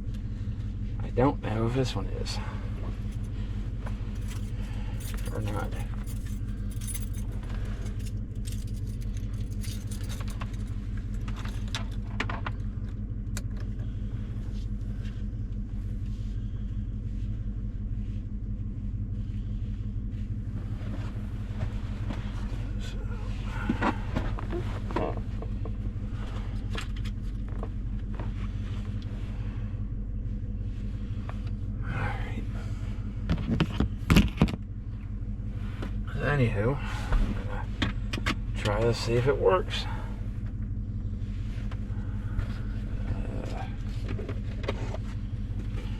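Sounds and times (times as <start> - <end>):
truck engine idling: 0.0 - 45.9
clicks and rattles of handling: 4.2 - 13.7.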